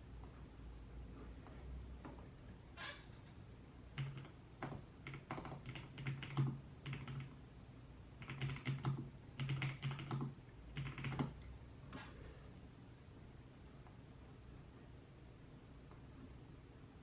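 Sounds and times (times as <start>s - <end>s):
typing on computer keyboard: 3.9s - 7.4s, 8.2s - 11.4s.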